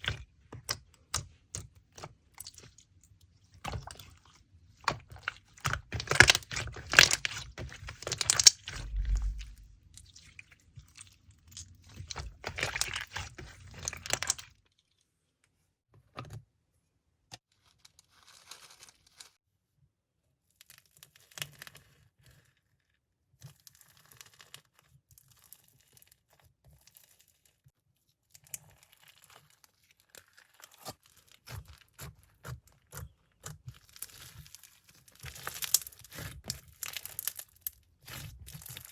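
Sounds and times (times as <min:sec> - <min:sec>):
crinkling handling noise: 0:03.6 - 0:09.8.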